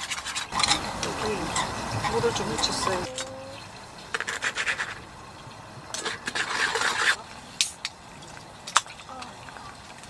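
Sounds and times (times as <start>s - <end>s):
scratchy scraping on hard surface: 4.2s - 5.0s, 6.0s - 7.2s.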